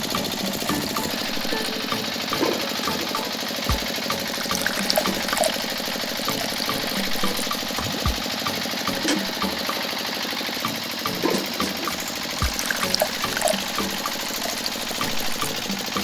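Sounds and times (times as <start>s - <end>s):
small motor rattling: 0.0s - 16.0s
clicks and low thumps: 7.8s - 8.2s.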